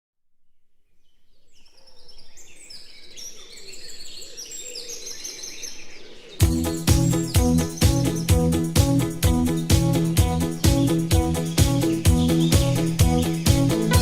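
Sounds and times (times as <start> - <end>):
birds chirping: 0.9 - 14.0
music with strong beat: 6.4 - 14.0.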